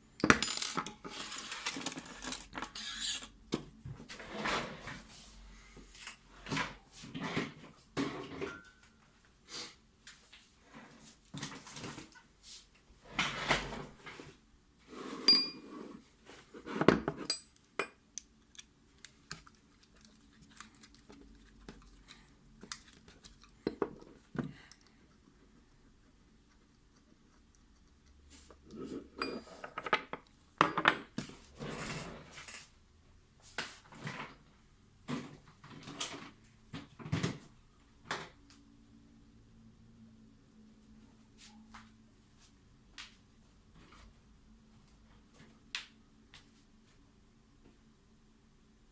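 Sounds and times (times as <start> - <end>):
metal lock parts clicking and clinking: 0.2 - 3.3.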